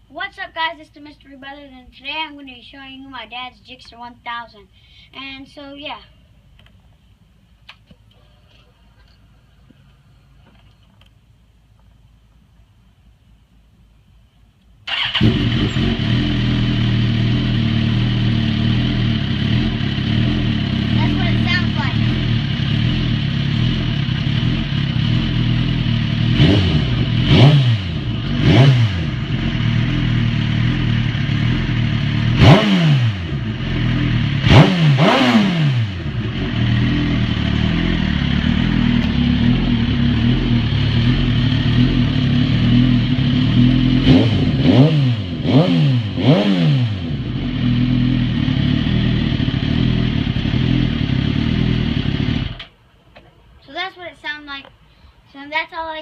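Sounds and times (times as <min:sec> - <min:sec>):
motorcycle engine idling and revving: 0:14.9 - 0:52.8.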